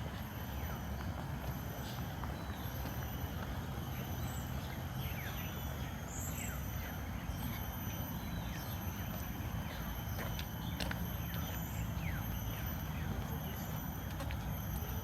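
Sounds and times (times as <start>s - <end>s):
constant low rumble: 0.0s - 15.0s
high insect drone: 3.9s - 15.0s.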